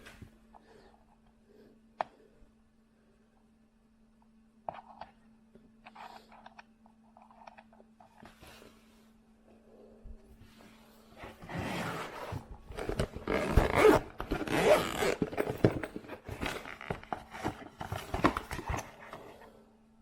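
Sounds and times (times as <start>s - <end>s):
faint steady hum: 0.0s - 20.0s
rustling and scraping: 10.4s - 19.6s.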